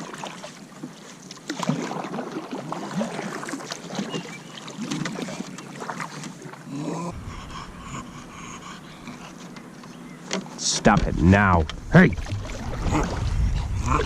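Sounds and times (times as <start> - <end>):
water lapping around a hull: 0.0 - 14.0
short low vocal sounds: 6.7 - 9.2, 11.0 - 14.0
wind rumbling on microphone: 7.1 - 9.3, 10.8 - 14.0.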